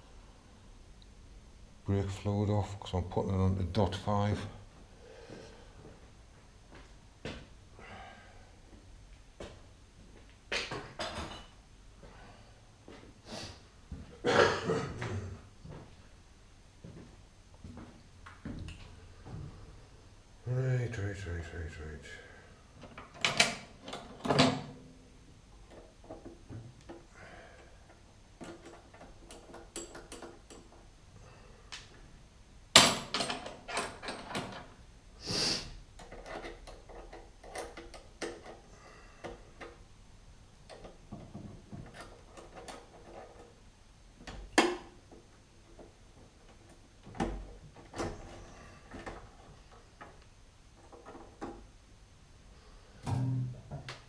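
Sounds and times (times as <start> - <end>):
hand tools and metal parts clunking: 27.9 - 30.9, 32.8 - 34.7, 40.7 - 43.6.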